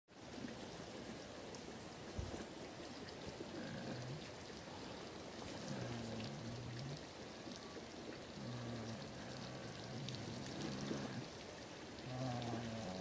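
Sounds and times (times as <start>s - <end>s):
light patter of ticks: 0.3s - 13.0s
goat snoring: 3.5s - 4.3s, 5.5s - 7.0s, 8.4s - 11.3s, 12.1s - 13.0s.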